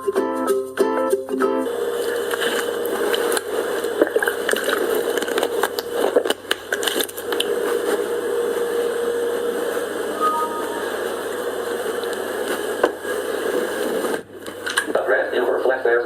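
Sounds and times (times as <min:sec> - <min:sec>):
faint hum: 0:07.4 - 0:14.2.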